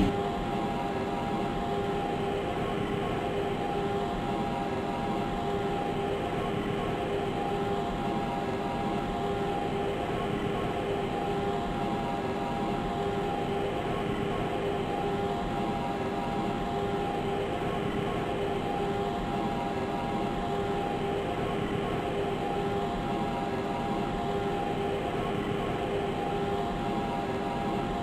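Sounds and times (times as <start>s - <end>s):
steady hum: 0.0s - 6.3s.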